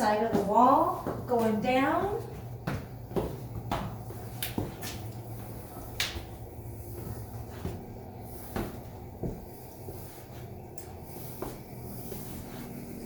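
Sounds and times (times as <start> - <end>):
footsteps down stairs: 0.0 - 13.0
steady low hum: 0.0 - 13.0.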